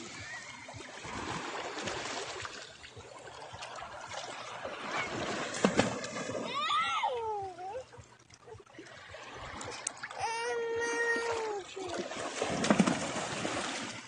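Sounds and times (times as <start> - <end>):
water splashing and lapping: 0.0 - 14.0
high-pitched voice calling out: 10.2 - 12.0.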